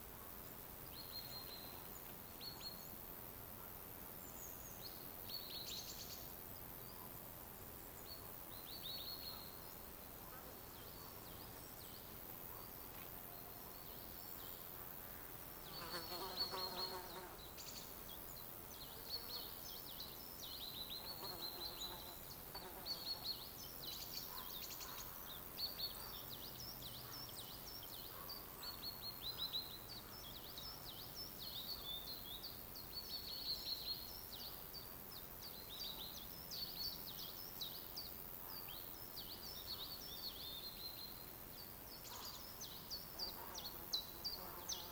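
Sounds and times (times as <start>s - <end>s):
faint steady hiss: 0.0s - 44.9s
small birds twittering: 0.7s - 44.9s.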